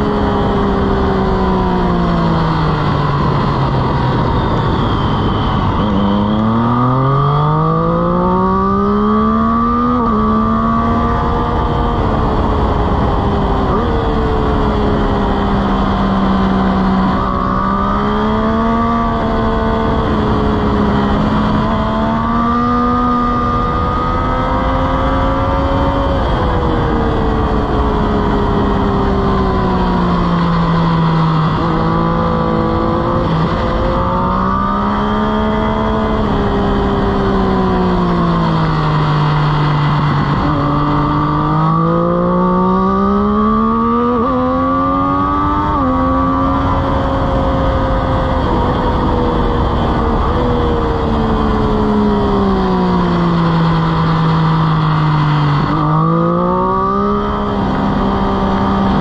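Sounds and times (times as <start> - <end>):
motorcycle engine: 0.0 - 59.0.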